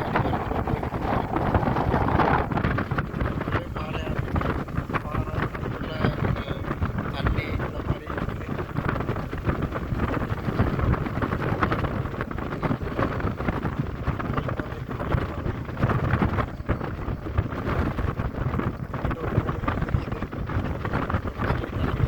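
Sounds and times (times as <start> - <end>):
road traffic rumble: 0.0 - 13.1
wind buffeting microphone: 0.0 - 22.0.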